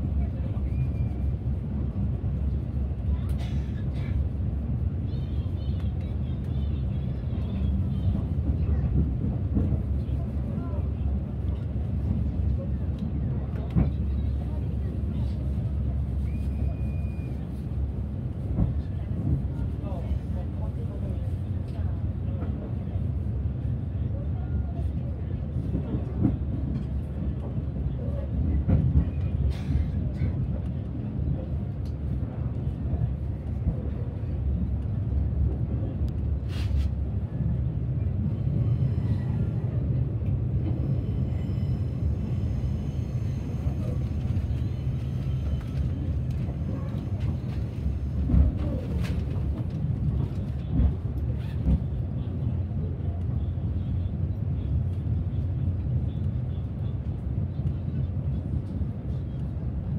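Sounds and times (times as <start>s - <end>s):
train carriage rumbling on rails: 0.0s - 59.9s.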